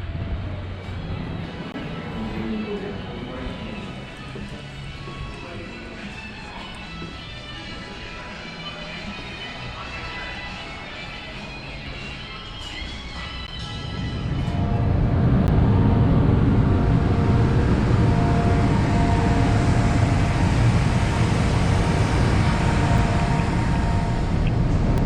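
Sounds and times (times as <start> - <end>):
ferry engine low rumble: 0.0 - 7.6, 13.5 - 25.0
faint steady whine: 12.2 - 25.0.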